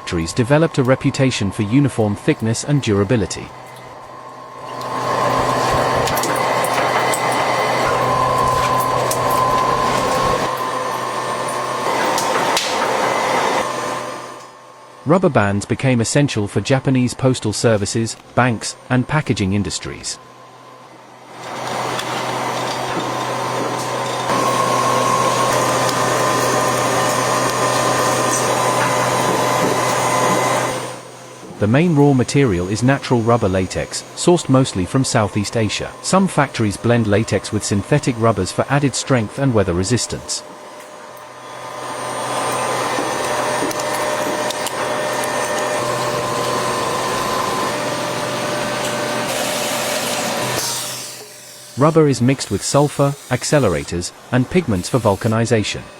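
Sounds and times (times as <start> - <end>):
machinery humming: 0.0 - 55.9.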